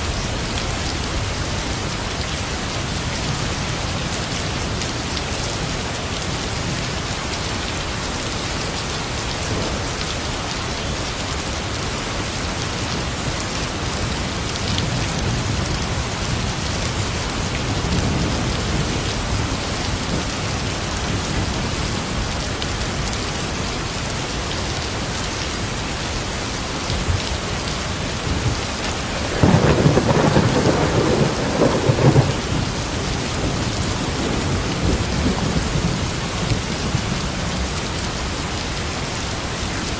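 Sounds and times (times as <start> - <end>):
steady rain falling: 0.0 - 39.9
rumble of thunder: 28.2 - 37.7.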